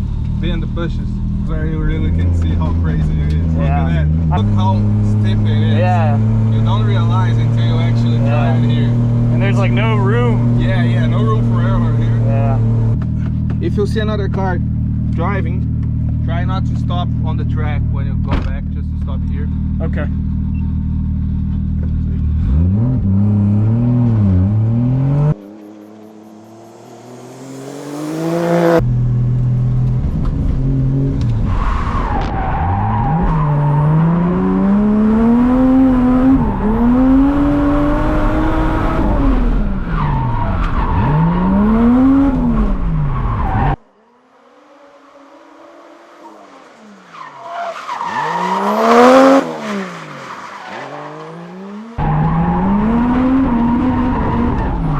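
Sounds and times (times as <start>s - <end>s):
car engine revving: 0.0s - 54.9s
tyres squealing: 44.9s - 51.4s.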